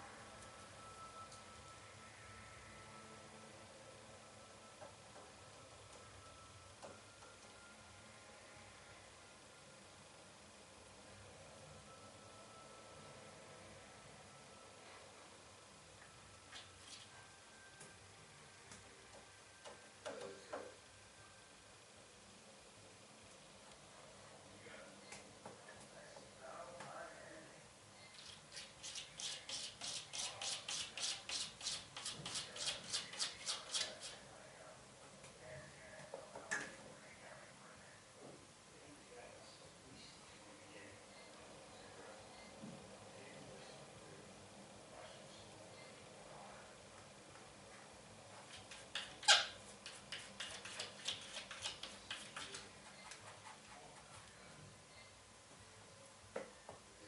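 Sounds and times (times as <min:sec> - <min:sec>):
cat scratching with claws: 0:28.2 - 0:34.2, 0:48.4 - 0:54.3.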